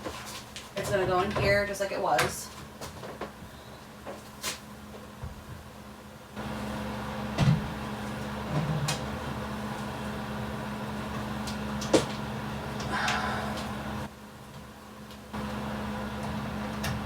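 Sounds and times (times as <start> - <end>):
steady motor hum: 4.8 - 17.0.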